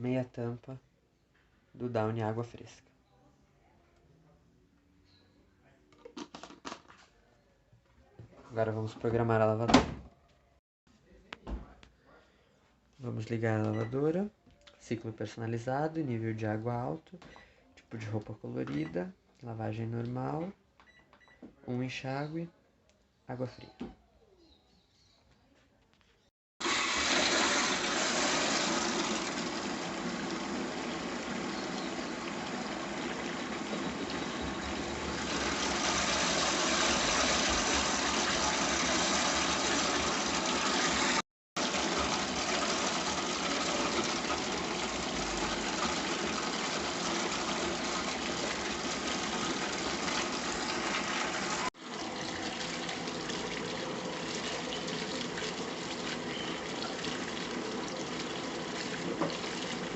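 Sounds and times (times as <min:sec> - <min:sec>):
water gushing into washing machine: 0:26.6 - 0:59.9.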